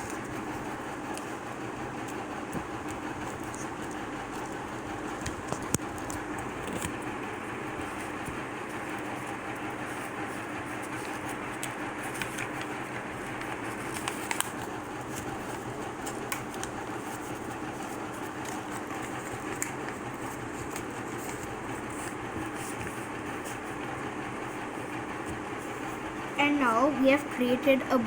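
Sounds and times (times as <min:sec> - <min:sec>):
soft crackles and taps: 0:01.0 - 0:07.1
paper folding and creasing: 0:02.2 - 0:26.0.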